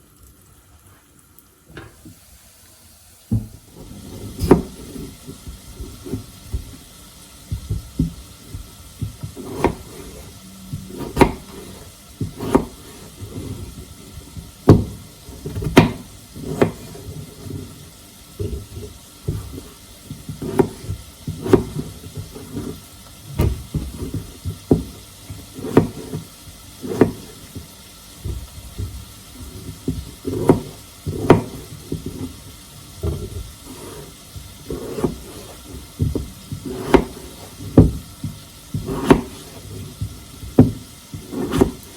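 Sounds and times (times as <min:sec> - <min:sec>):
household knocks and clatters: 0:07.5 - 0:09.9, 0:34.7 - 0:41.9.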